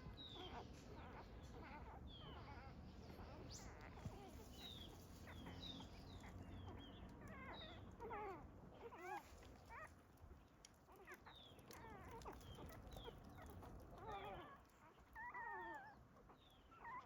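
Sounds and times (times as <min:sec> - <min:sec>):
puppies whimpering: 0:16.7 - 0:17.0.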